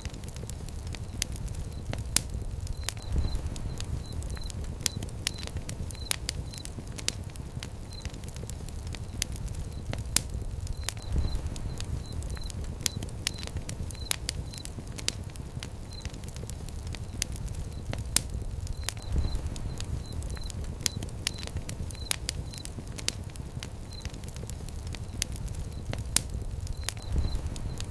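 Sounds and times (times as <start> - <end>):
fire pit crackling: 0.0 - 27.9
faint high chirps: 2.6 - 6.8, 10.6 - 14.8, 17.0 - 22.8, 26.7 - 27.9.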